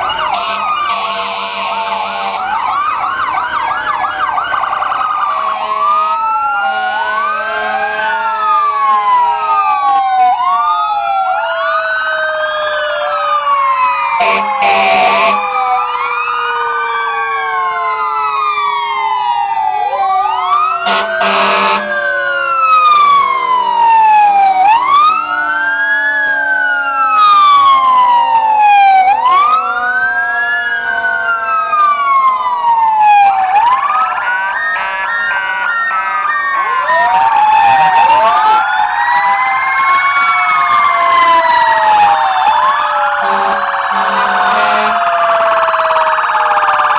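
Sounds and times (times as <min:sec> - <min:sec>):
sirens wailing: 0:00.0 - 0:46.9
loud horn blasts: 0:00.3 - 0:02.4, 0:05.3 - 0:06.2, 0:14.2 - 0:15.4, 0:20.8 - 0:21.9, 0:43.2 - 0:45.0.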